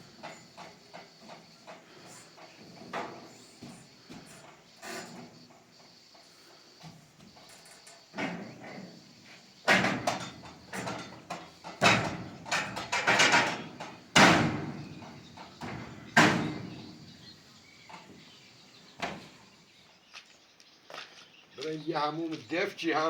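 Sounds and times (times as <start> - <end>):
sharp knocks and bangs: 9.6 - 17.2.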